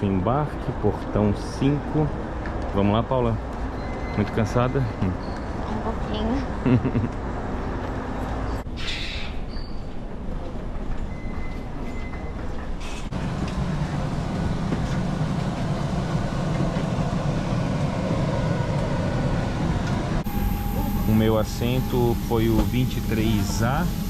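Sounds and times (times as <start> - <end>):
mechanical rumble and hiss: 12.7 - 24.0
deeper hum: 13.1 - 24.0.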